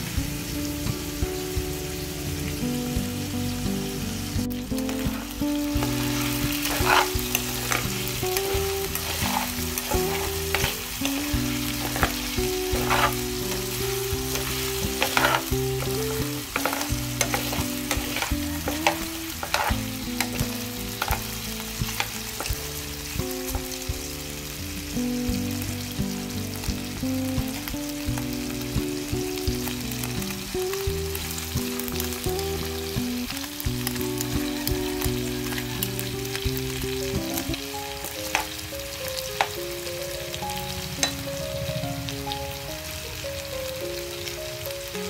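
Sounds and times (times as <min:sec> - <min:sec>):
chicken frying in oil: 0:00.0 - 0:45.0
metal spatula scraping a pan: 0:04.9 - 0:22.5.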